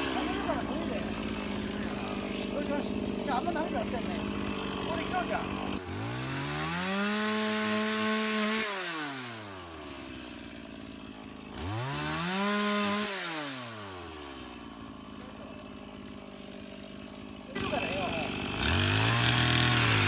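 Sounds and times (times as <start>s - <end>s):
chainsaw revving and idling: 0.0s - 20.0s.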